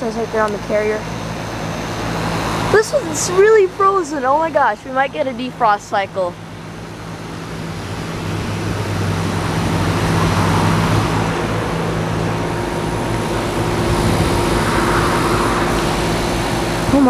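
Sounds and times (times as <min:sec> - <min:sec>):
low compressor hum: 0:00.0 - 0:17.0
fans whooshing: 0:07.8 - 0:17.0.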